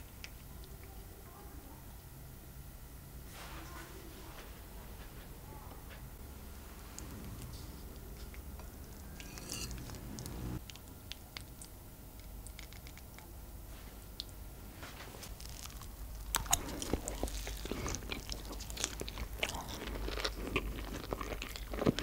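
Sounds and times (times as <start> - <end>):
chewing with sharp clicks: 10.6 - 13.3, 15.6 - 22.0.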